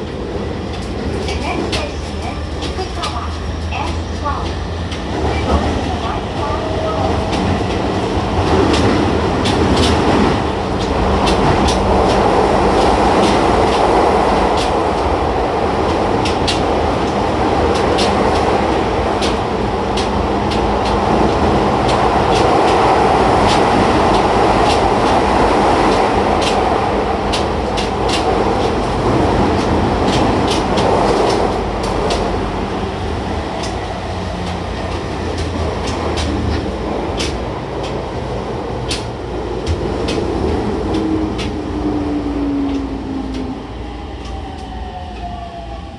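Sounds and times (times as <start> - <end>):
subway train wheels rumbling on rail: 0.0 - 45.9
clicks over rail joints: 6.9 - 15.1, 15.8 - 41.6.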